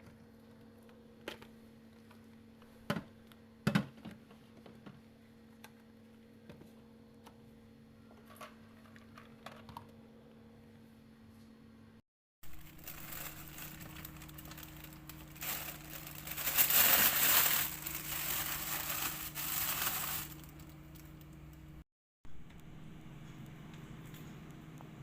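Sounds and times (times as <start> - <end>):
steady low hum: 10.0 - 25.0
crinkling handling noise: 12.4 - 21.6.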